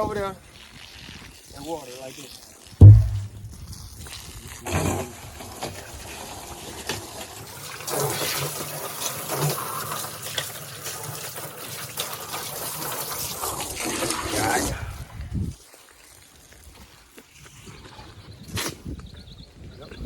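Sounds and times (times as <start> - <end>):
water pouring into a barrel: 0.0 - 15.0
short thump: 2.8 - 3.6.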